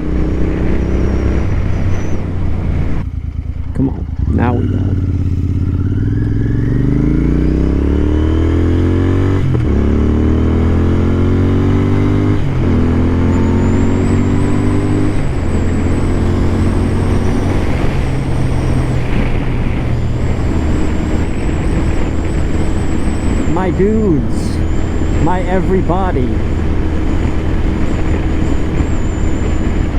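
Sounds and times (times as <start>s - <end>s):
motorcycle accelerating through gears: 0.0s - 29.9s
wind rush on microphone: 13.6s - 25.4s, 26.2s - 29.9s.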